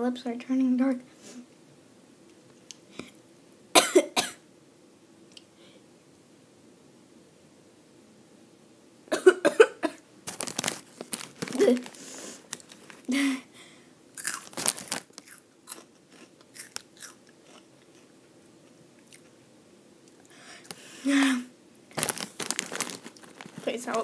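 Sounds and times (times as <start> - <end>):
snack bag rustling: 10.2 - 13.1, 14.2 - 18.1, 21.9 - 24.0
crunching and chewing snacks: 10.3 - 13.1, 14.2 - 19.4, 21.9 - 24.0.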